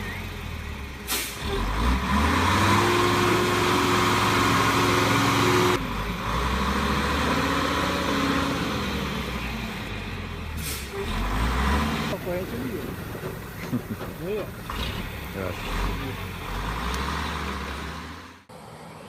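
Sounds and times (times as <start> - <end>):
engine with rising and falling pitch: 0.0 - 12.4, 14.8 - 19.0
diesel truck engine running: 0.0 - 19.0.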